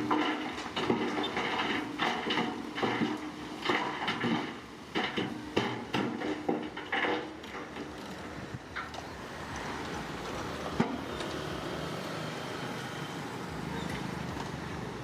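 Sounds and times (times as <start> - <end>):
metallic clanks and knocks: 0.0 - 9.1
diesel engine hum: 7.5 - 15.0.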